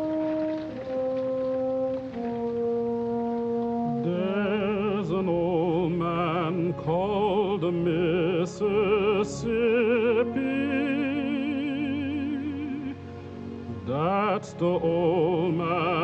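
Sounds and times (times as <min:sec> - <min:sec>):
orchestral accompaniment: 0:00.0 - 0:16.0
man singing operatically: 0:03.9 - 0:13.0, 0:13.7 - 0:16.0.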